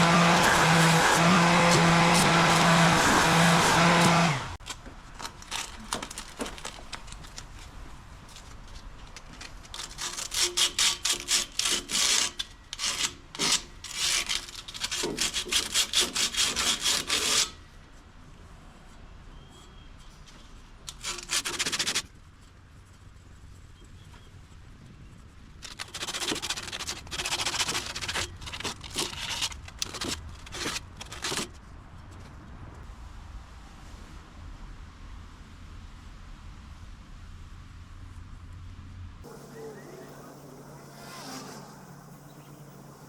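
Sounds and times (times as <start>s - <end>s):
metal filed by hand: 0.0s - 4.6s, 9.9s - 17.6s, 20.9s - 22.0s.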